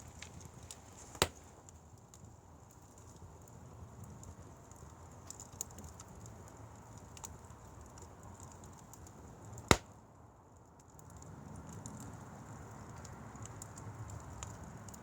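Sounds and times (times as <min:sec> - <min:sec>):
firewood crackling: 0:00.0 - 0:15.0
loud sharp pop of fire: 0:01.2 - 0:01.5, 0:09.7 - 0:10.0.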